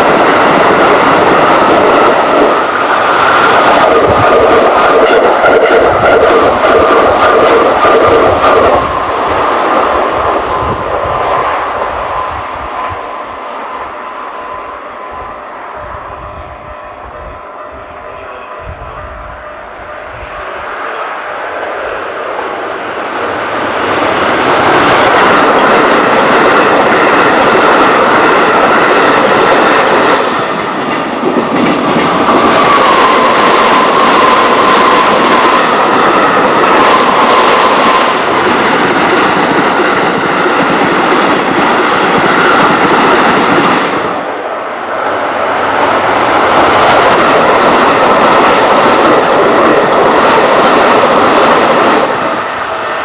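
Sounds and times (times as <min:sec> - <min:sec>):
thin high squeal: 0:22.9 - 0:25.4.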